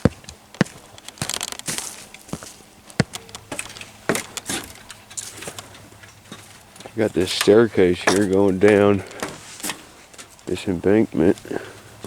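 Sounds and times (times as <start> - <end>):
footsteps crunching on a trail: 0.0 - 7.2.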